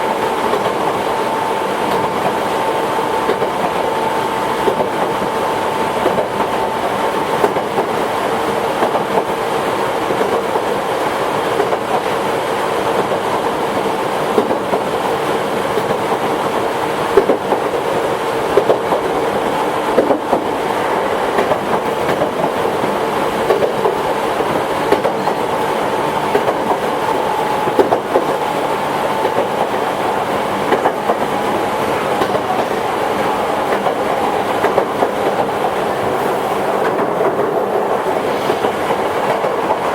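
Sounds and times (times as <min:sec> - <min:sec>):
electric train running: 0:00.0 - 0:39.9
train whine: 0:00.0 - 0:39.9
wheels clicking over rail joints: 0:21.3 - 0:25.5, 0:26.2 - 0:28.5.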